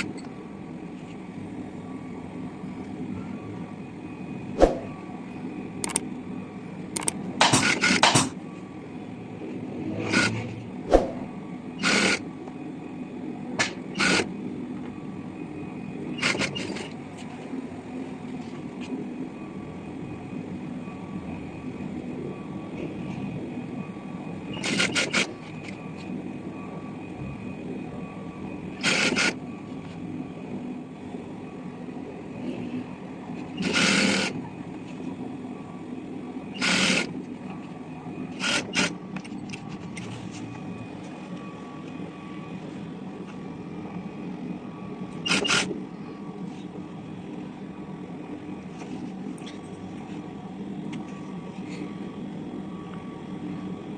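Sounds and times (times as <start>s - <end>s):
steady low hum: 0.0s - 53.9s
pneumatic staple gun firing: 45.3s - 45.7s.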